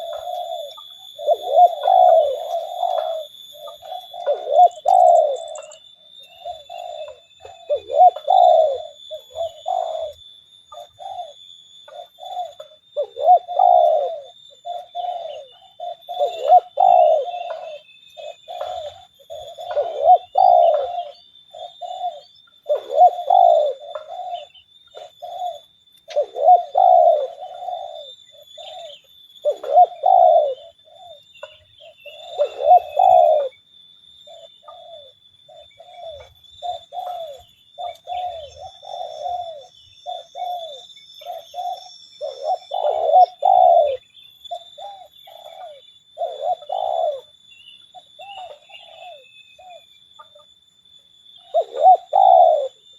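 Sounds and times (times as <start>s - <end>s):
doves cooing: 0.0s - 50.5s, 51.3s - 52.9s.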